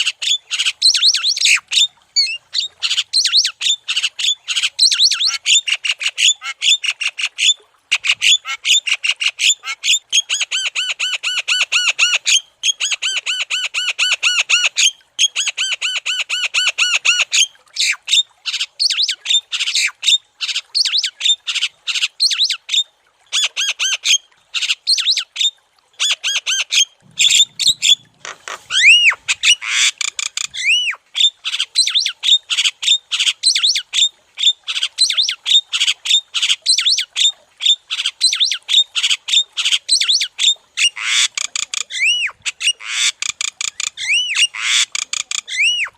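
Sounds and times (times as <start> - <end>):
bird singing and chattering: 27.1 - 31.0.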